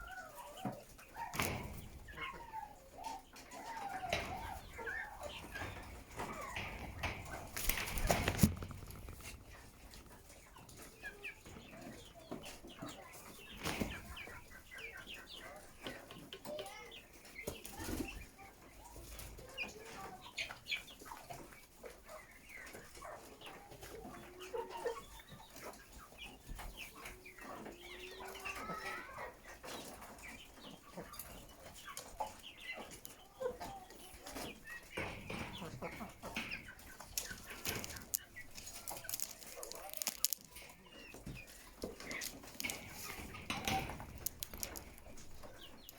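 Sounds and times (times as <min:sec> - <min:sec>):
chickens clucking: 0:00.0 - 0:45.9
sharp clicks: 0:42.1 - 0:45.9.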